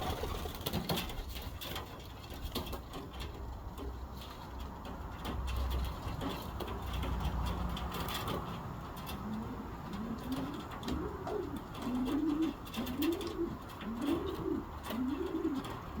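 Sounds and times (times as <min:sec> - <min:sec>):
pigeons cooing: 0:00.0 - 0:01.4, 0:06.0 - 0:16.0.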